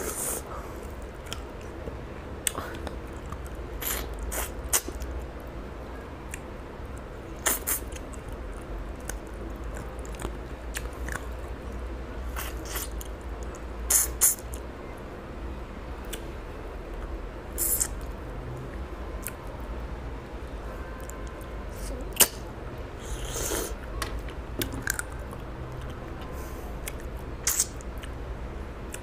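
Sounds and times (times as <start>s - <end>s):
person chewing and lip smacking: 1.2s - 1.7s, 7.4s - 11.3s, 12.4s - 14.6s, 26.8s - 28.2s.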